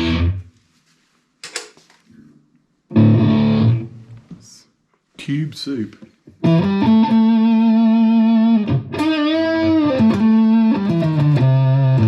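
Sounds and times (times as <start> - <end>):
electric guitar sustained notes: 0.0 - 0.4, 2.9 - 4.0, 6.4 - 12.0.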